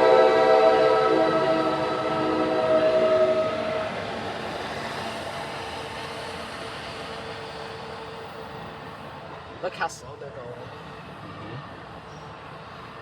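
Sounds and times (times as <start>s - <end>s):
train horn chord: 0.0s - 4.2s
train rumbling past: 0.0s - 13.0s.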